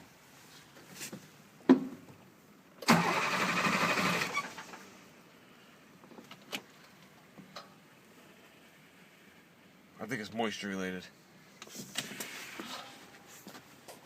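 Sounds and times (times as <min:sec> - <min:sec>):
diesel engine starter cranking: 0:02.8 - 0:05.0.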